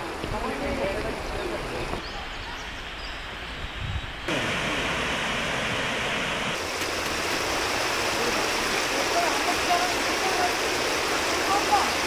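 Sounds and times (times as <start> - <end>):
waterfall rushing: 4.3 - 12.0.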